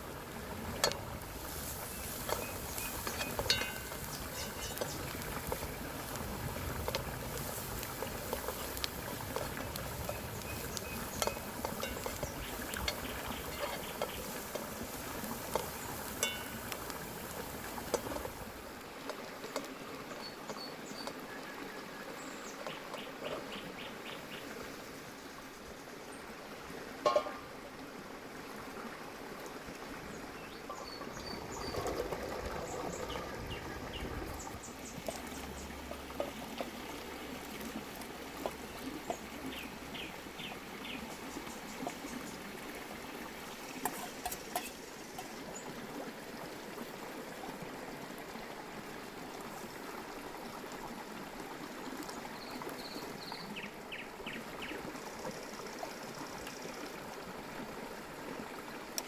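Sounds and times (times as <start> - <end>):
steady hiss with crackles: 0.0 - 48.2
small birds chirping: 1.5 - 6.0, 6.9 - 16.6, 30.2 - 36.0.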